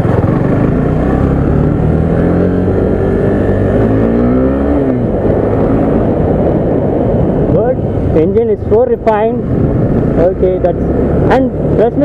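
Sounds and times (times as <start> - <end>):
motorcycle engine accelerating: 0.0 - 8.1.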